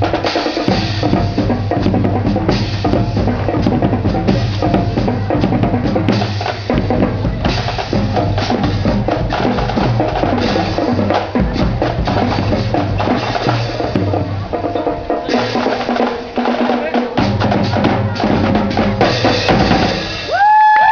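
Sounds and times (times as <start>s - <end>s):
marching drum band: 0.0s - 20.8s.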